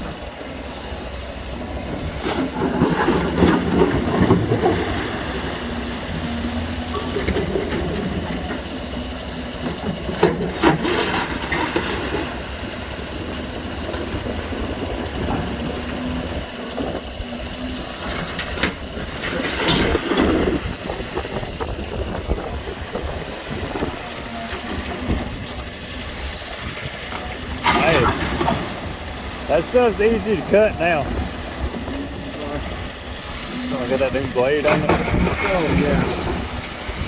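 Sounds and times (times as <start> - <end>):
diesel machinery running: 0.0 - 37.0
metal clanking and scraping: 26.6 - 37.0.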